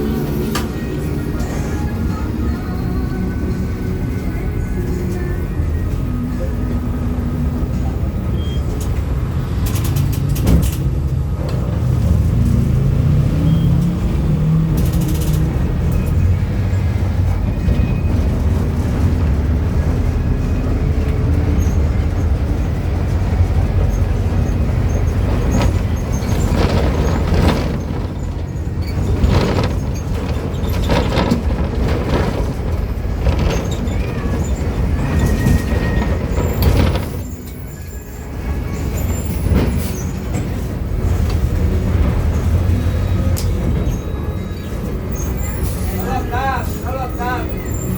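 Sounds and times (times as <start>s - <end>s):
bus engine rumble: 0.0s - 47.9s
rattles and knocks: 8.8s - 12.9s, 21.0s - 37.6s.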